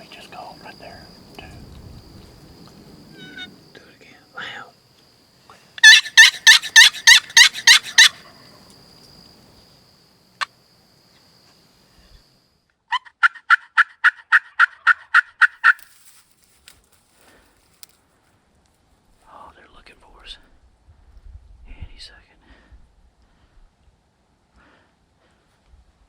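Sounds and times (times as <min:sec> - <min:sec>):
turkey yelping: 0:03.2 - 0:03.5, 0:05.8 - 0:08.4, 0:12.9 - 0:15.8.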